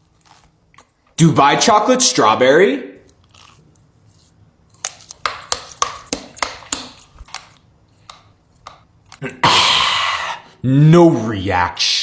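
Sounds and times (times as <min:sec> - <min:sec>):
crunchy chewing: 0:00.0 - 0:01.2, 0:03.0 - 0:05.8.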